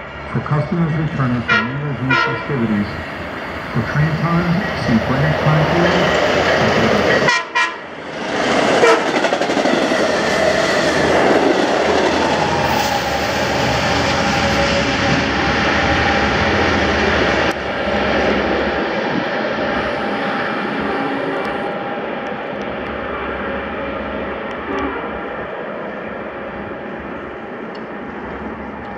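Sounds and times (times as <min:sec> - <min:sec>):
train horn: 0:01.5 - 0:02.6, 0:07.2 - 0:07.9, 0:08.8 - 0:09.2.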